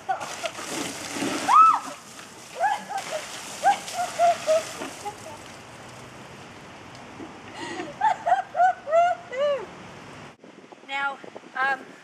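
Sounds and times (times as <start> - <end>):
water falling: 0.2 - 6.0.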